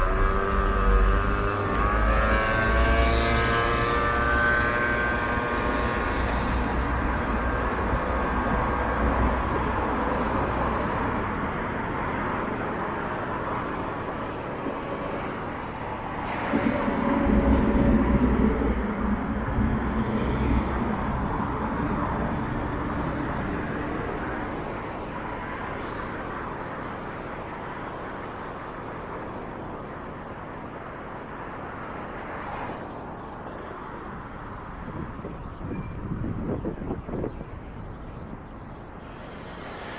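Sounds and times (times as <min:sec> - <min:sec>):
heavy vehicle passing: 0:00.0 - 0:27.5
city road traffic: 0:00.0 - 0:39.9.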